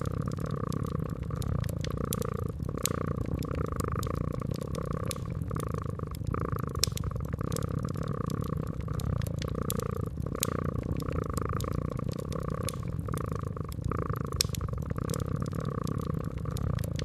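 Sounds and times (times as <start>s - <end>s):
cat purring: 0.0s - 17.0s
fireplace fire crackling: 0.0s - 17.0s.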